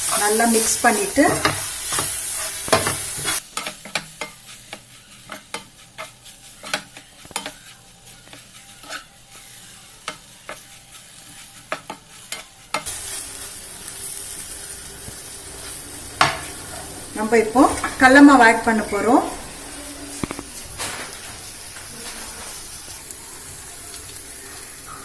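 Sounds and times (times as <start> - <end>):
food sizzling in pan: 0.0 - 25.0.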